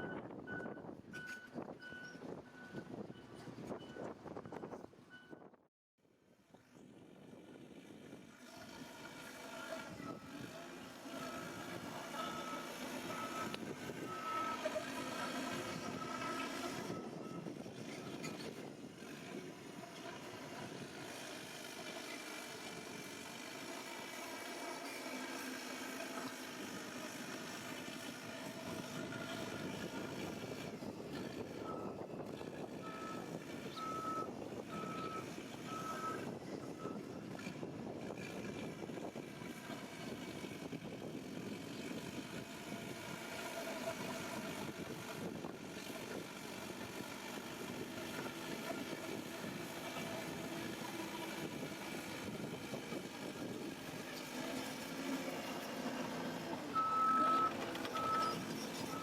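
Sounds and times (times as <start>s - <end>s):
heavy machinery engine running: 8.1s - 59.0s
reversing alarm beeping: 12.2s - 14.7s, 56.8s - 59.0s.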